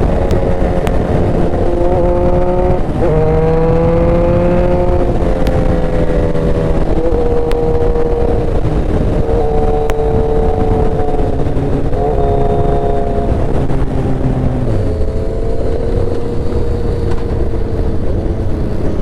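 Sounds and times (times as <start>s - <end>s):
low rush of noise: 0.0s - 19.0s
motorcycle engine running: 0.0s - 19.0s.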